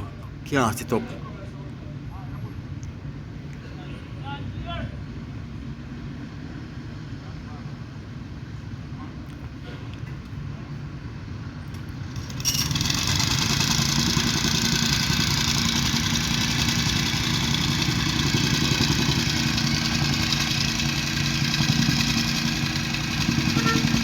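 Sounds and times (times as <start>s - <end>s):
engine running: 11.6s - 24.0s.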